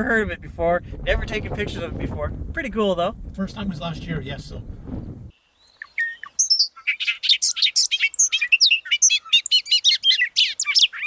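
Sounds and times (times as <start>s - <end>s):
bird singing bubbling song: 5.3s - 11.0s.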